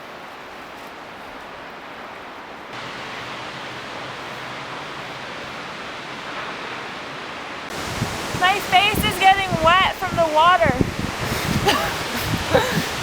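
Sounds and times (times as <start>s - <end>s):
waterfall rushing close up: 2.6s - 13.0s.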